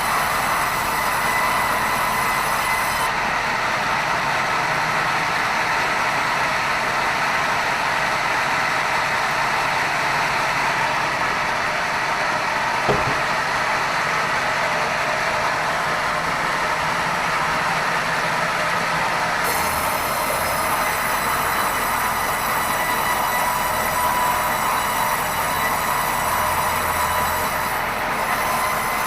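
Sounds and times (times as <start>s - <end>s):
band saw running: 0.0s - 3.2s, 9.3s - 29.0s
knock: 12.9s - 13.4s
high-pitched saw blade whine: 19.5s - 29.0s.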